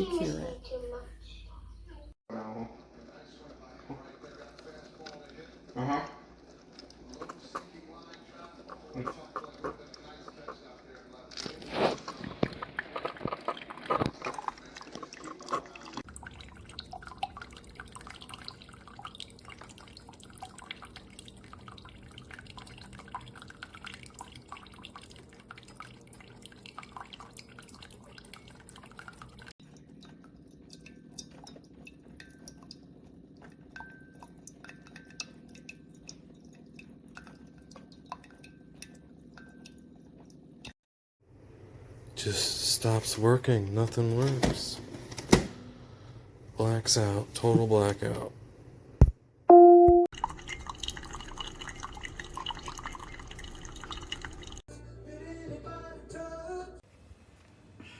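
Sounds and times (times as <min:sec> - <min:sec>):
liquid dripping and sputtering: 0:04.1 - 0:40.8, 0:50.1 - 0:54.6
coffee maker humming: 0:50.2 - 0:54.6.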